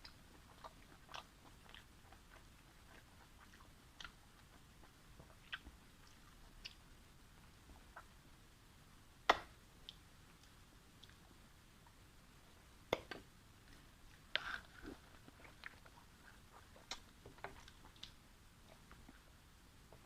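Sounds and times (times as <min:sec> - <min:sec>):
person chewing: 0:00.0 - 0:06.8, 0:13.6 - 0:19.2
mouth clicks and smacks: 0:00.0 - 0:06.9, 0:12.9 - 0:19.3.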